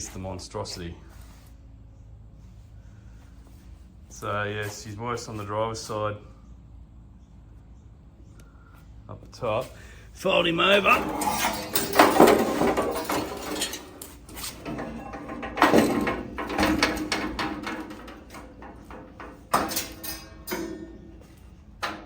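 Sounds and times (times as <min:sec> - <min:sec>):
sheet metal creaking and scraping: 0:10.3 - 0:22.0
sharp metal clicks and knocks: 0:10.8 - 0:22.0.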